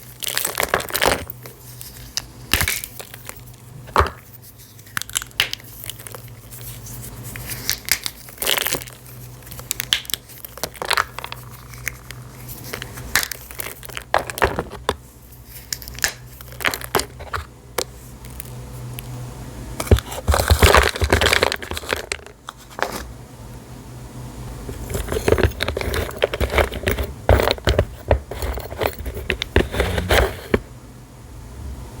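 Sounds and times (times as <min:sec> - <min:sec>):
dry pieces crunching: 0:00.0 - 0:14.9.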